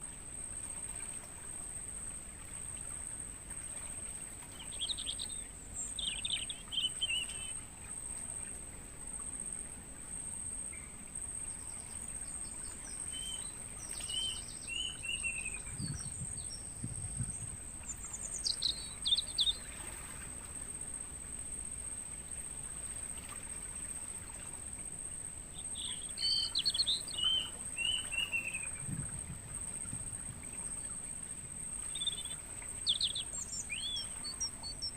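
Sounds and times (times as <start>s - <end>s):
crickets chirping: 0.0s - 34.9s
songbirds chirping: 2.2s - 21.9s, 24.8s - 34.9s.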